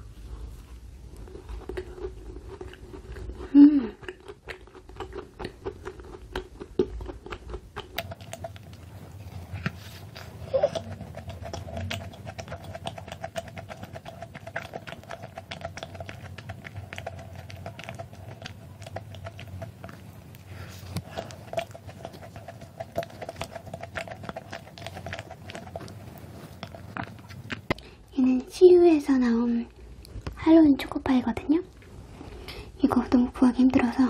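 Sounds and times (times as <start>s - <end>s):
chewing mouth clicks: 1.1s - 28.0s.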